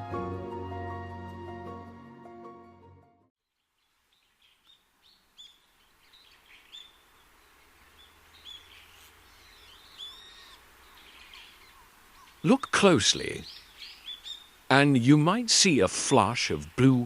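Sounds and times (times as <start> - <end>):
soft music: 0.0 - 3.3
faint outdoor background noise: 3.4 - 17.0
birds chirping: 3.5 - 17.0.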